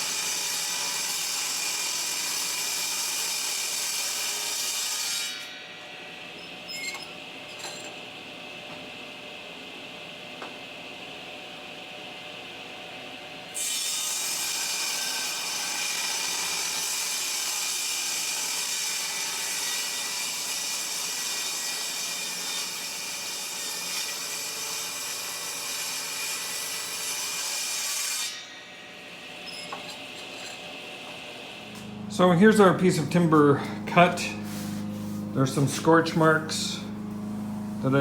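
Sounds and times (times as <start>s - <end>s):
sawmill blade humming: 28.2s - 38.0s
blade sawing through wood: 31.8s - 36.9s.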